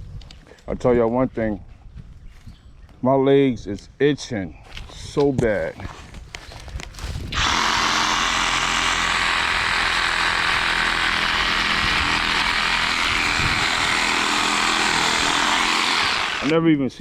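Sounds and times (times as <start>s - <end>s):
reciprocating saw cutting wood: 7.3s - 16.7s.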